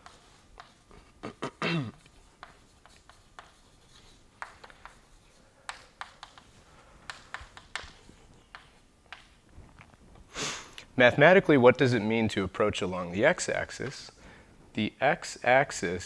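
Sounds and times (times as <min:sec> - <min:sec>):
chalk tapping and scratching on blackboard: 0:00.0 - 0:01.1, 0:02.0 - 0:09.4.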